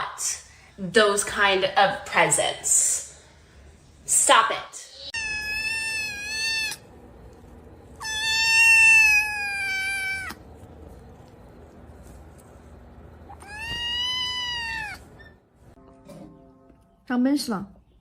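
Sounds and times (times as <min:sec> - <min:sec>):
cat meowing: 0:05.0 - 0:06.9, 0:08.0 - 0:10.4, 0:13.3 - 0:15.2.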